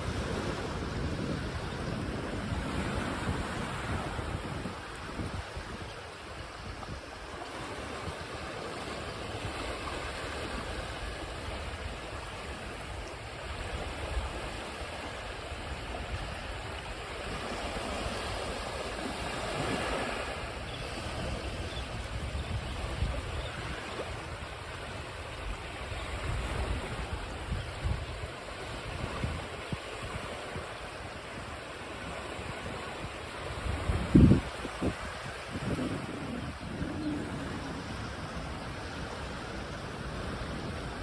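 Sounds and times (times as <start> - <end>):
ocean waves breaking: 0.0 - 41.0.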